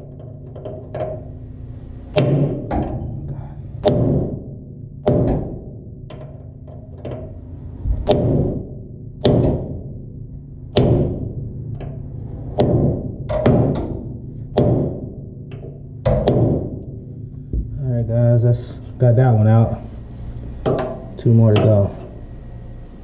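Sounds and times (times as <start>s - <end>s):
hammer striking metal punch: 2.1s - 3.2s, 3.8s - 6.4s, 8.0s - 12.0s, 12.6s - 17.0s.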